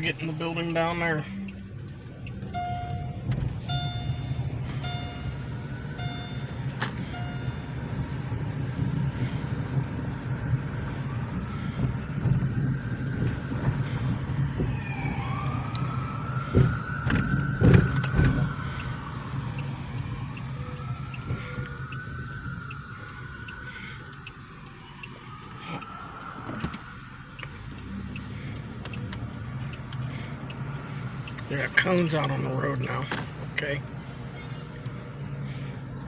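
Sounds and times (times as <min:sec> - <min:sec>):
car engine and road noise: 0:00.0 - 0:36.0
siren wailing: 0:00.5 - 0:31.3
short beeps: 0:02.5 - 0:07.8.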